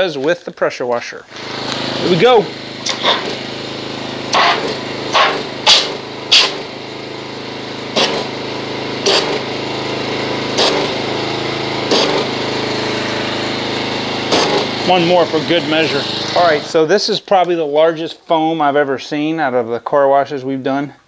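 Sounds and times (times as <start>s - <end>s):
spray blasting into bucket: 1.3s - 16.8s
pressure washer running: 1.3s - 16.9s.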